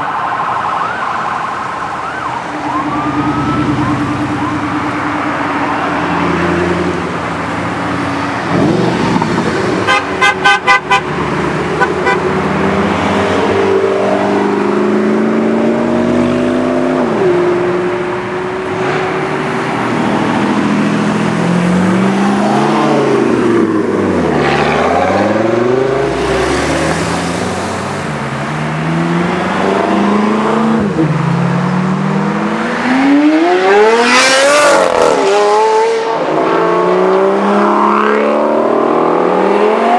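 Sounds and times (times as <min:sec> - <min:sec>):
car engines revving: 0:00.0 - 0:39.9
car horn honking: 0:08.6 - 0:12.5.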